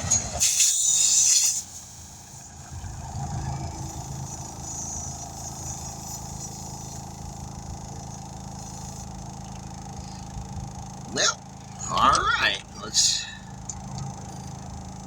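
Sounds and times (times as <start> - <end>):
air compressor running: 0.0 - 15.0.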